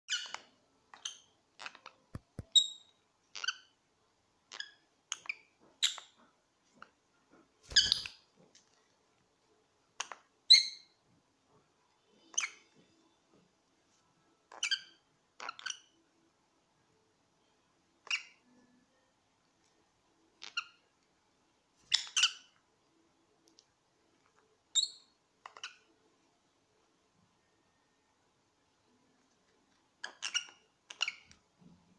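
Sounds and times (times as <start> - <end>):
parrots chirping and squawking: 7.7 - 8.2.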